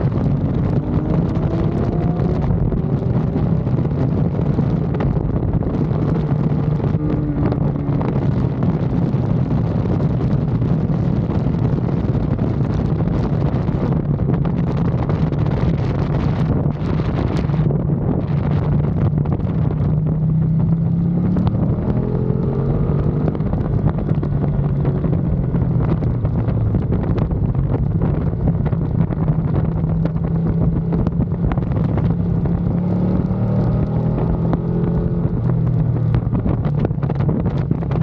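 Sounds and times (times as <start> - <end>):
motorcycle engine running hard: 0.0 - 38.0
wind buffeting microphone: 0.0 - 38.0.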